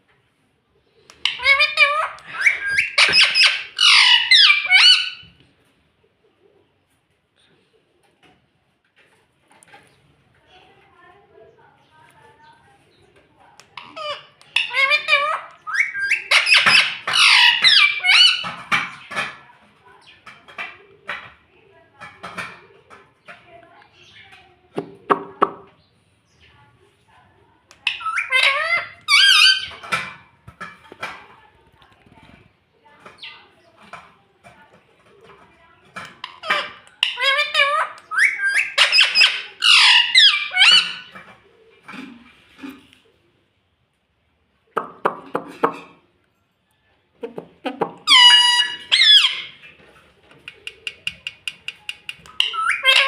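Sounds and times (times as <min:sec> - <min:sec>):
parrot squawking: 0:01.2 - 0:05.3, 0:13.8 - 0:18.6, 0:27.8 - 0:29.9, 0:36.2 - 0:41.2, 0:48.0 - 0:49.6, 0:50.6 - 0:53.0.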